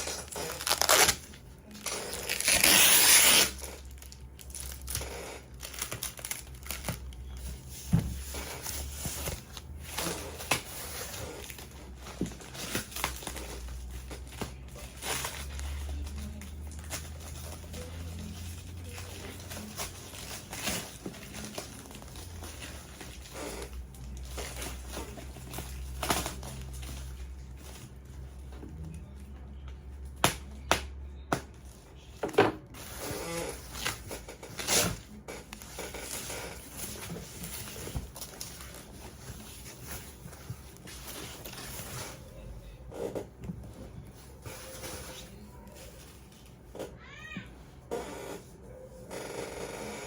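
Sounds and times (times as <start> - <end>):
cardboard packaging rustling: 0.0 - 28.8, 32.7 - 46.7.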